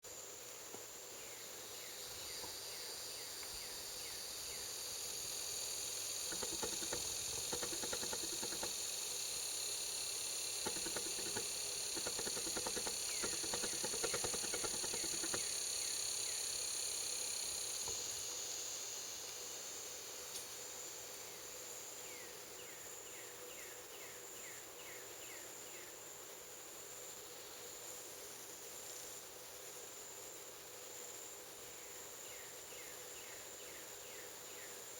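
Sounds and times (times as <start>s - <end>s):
insect chorus: 0.0s - 34.9s
rapid ticking or rustling: 6.3s - 8.8s, 10.6s - 15.5s.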